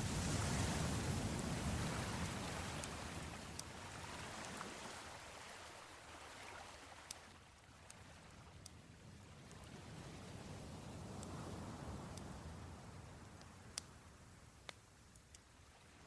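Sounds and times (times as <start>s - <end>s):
waves washing on shore: 0.0s - 8.4s
campfire crackling pops: 13.3s - 14.0s.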